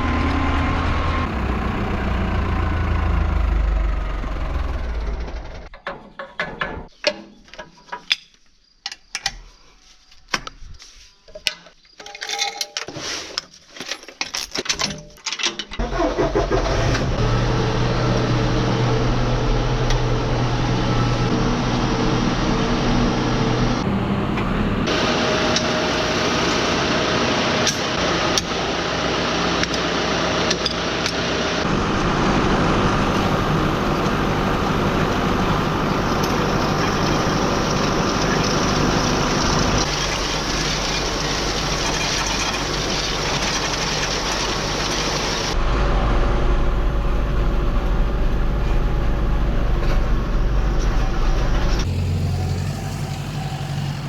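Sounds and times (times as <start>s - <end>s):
engines running: 0.0s - 5.8s, 15.8s - 54.0s
heavy low rumble: 43.1s - 54.0s.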